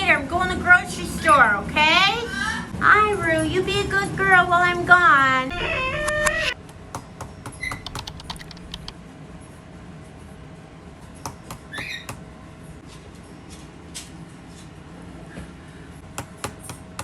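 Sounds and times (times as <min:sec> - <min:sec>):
parrot squawking: 0:05.5 - 0:06.6
light clicks and taps: 0:06.7 - 0:08.9.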